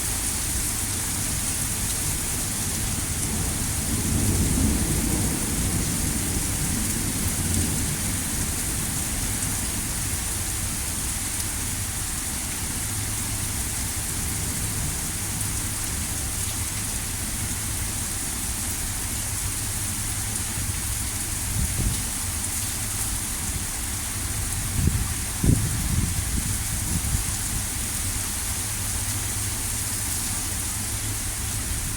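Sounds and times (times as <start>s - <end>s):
heavy rain pouring: 0.0s - 31.9s.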